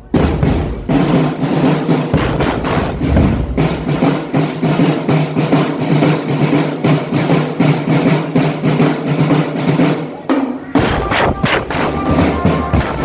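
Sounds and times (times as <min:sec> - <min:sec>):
marching drum band: 0:00.0 - 0:13.0.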